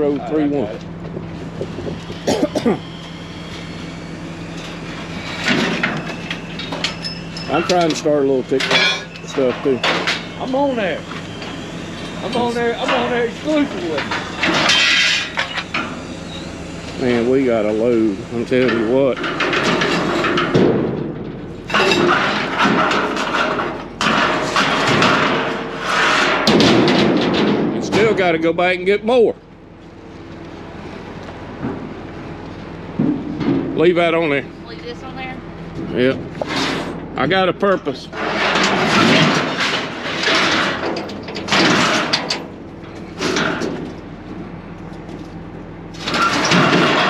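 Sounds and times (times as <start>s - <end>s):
sharp metal clanks: 5.4s - 10.5s
scrap metal clattering: 12.0s - 16.0s, 18.6s - 28.2s, 38.0s - 44.0s, 46.0s - 47.0s.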